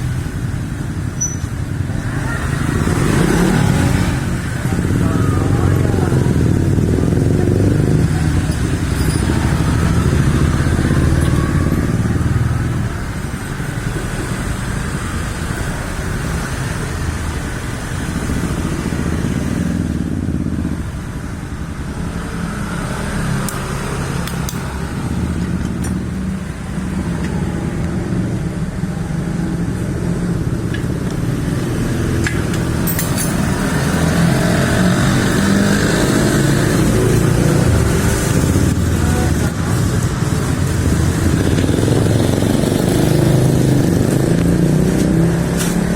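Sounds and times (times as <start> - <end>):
motorcycle engines running: 0.0 - 45.9.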